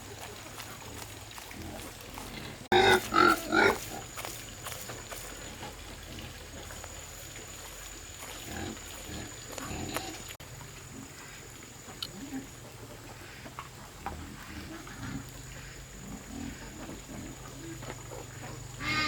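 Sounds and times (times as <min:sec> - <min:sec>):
farm animal calling: 0:01.8 - 0:05.3, 0:14.4 - 0:19.0.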